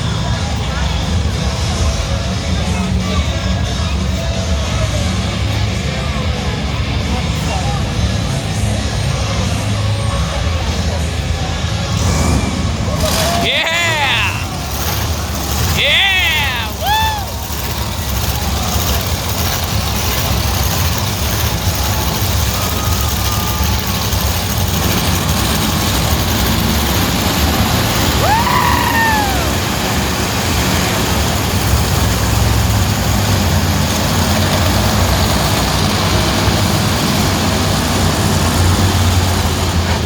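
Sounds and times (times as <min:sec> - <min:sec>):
monster truck engines rumbling: 0:00.0 - 0:40.0
gliding whoop: 0:12.9 - 0:14.6, 0:15.8 - 0:17.9, 0:28.0 - 0:30.0.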